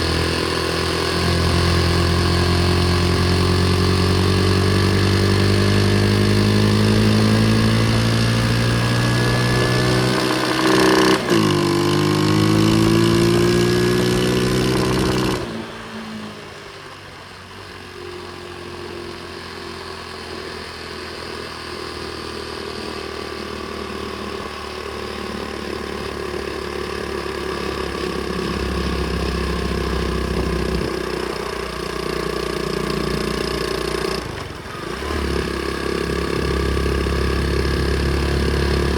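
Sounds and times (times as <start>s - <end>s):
pit bike engine running: 25.3s - 38.9s.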